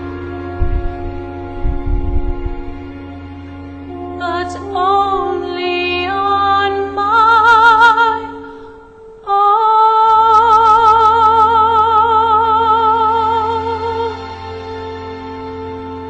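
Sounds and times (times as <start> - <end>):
soft sustained accompaniment: 0.0 - 16.0
woman singing ballad: 3.9 - 14.4.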